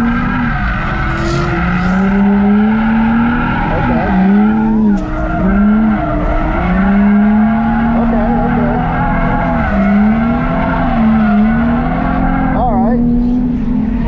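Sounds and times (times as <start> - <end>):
tyres squealing: 0.0 - 13.2
car engine revving: 0.0 - 14.0.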